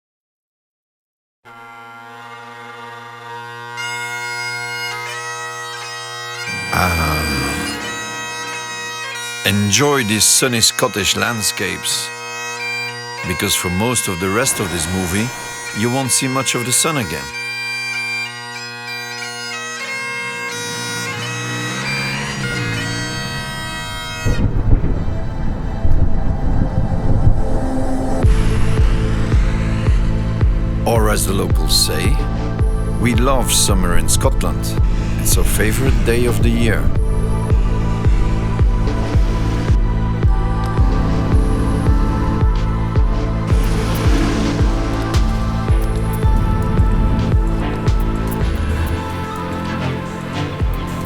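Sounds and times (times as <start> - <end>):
bagpipe chanter melody: 1.5 - 27.2, 28.1 - 51.0
bagpipe drones: 1.5 - 51.0
low sound: 6.4 - 9.8.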